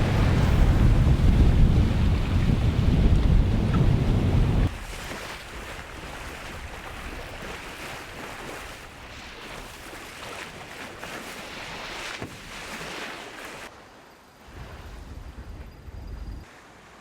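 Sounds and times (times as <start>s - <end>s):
wind buffeting microphone: 0.0s - 9.2s
rushing sea water and spray: 0.0s - 15.6s.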